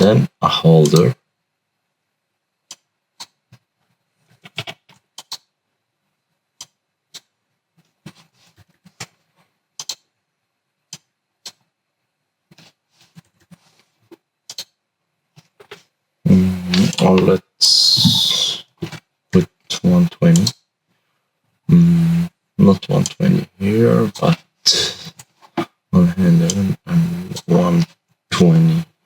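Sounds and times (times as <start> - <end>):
computer mouse clicks: 2.7 - 3.6, 4.4 - 5.5, 6.6 - 7.3, 9.8 - 10.1, 10.9 - 11.6, 14.5 - 14.8.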